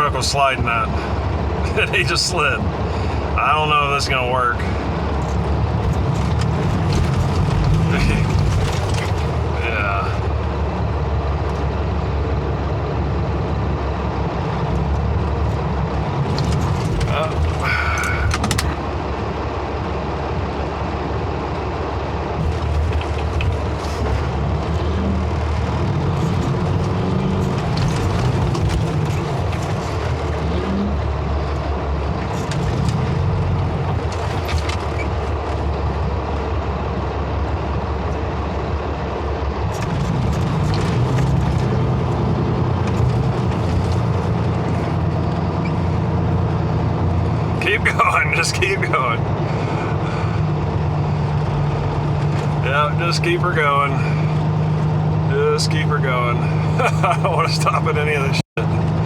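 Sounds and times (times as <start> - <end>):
diesel truck engine revving: 0.0 - 59.0.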